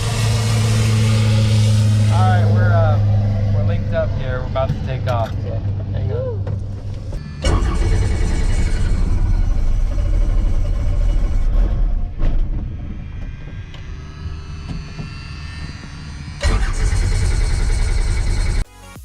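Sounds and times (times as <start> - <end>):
helicopter engine and rotor: 6.7 - 11.5, 16.3 - 18.6.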